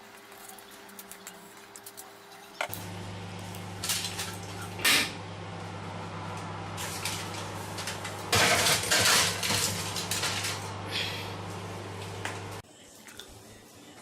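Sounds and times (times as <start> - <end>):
low electrical hum: 0.0 - 12.6
metal baking tray clattering: 6.8 - 10.7.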